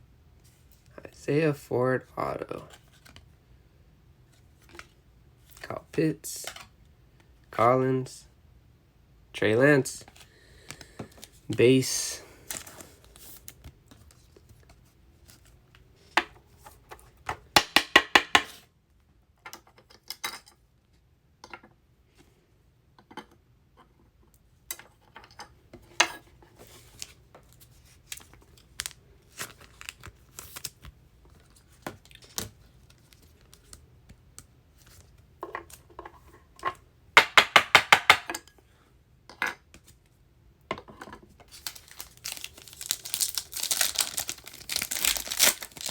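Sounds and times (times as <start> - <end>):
trading cards being handled: 41.5 - 45.9.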